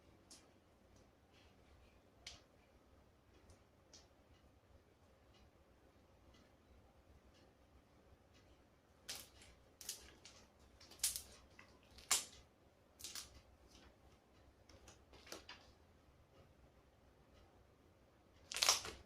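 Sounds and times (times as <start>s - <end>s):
sticky slime smacks and clicks: 18.5s - 19.0s.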